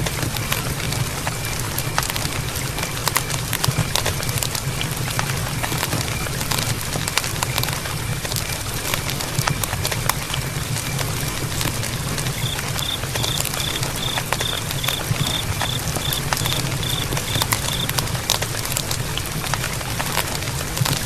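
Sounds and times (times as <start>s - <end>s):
campfire crackling and popping: 0.0s - 21.0s
high animal call: 12.2s - 17.9s.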